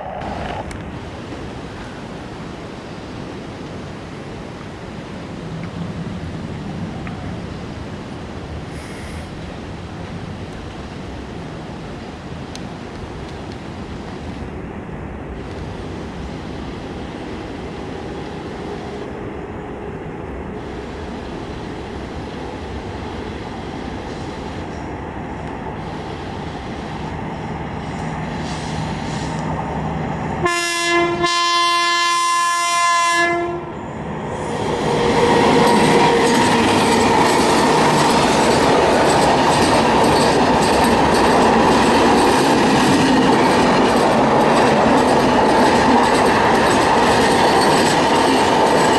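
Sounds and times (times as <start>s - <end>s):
train passing: 0.0s - 48.9s
locomotive horn: 30.1s - 38.0s
wheels clattering over rail joints: 34.5s - 48.9s.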